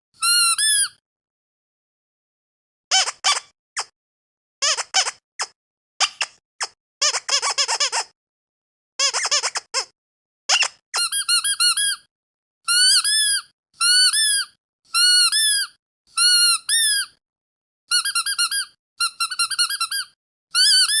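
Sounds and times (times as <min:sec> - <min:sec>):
squeaky dog toy squeaking: 0:00.2 - 0:01.0, 0:02.9 - 0:03.9, 0:04.6 - 0:08.2, 0:09.0 - 0:09.9, 0:10.5 - 0:12.1, 0:12.7 - 0:17.2, 0:17.9 - 0:21.0.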